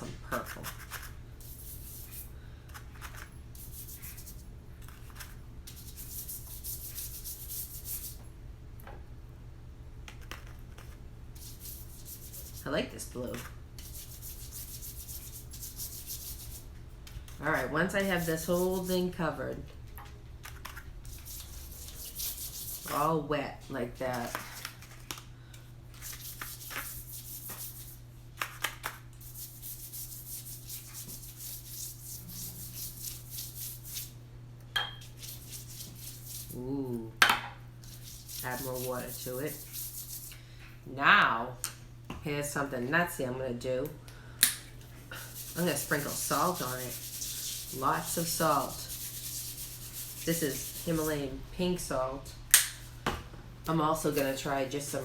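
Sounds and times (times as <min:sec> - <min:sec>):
low electrical hum: 0:00.0 - 0:55.0
paintbrush stroking across paper: 0:11.4 - 0:12.7, 0:13.8 - 0:16.7, 0:17.4 - 0:19.1, 0:21.1 - 0:23.0, 0:29.2 - 0:34.1, 0:35.1 - 0:36.6, 0:37.8 - 0:40.3, 0:45.2 - 0:51.2.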